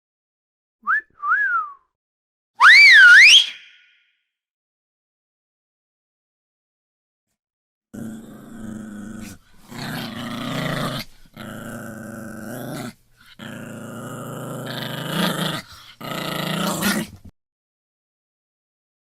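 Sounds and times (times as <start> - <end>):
dog growling: 8.0 - 17.3.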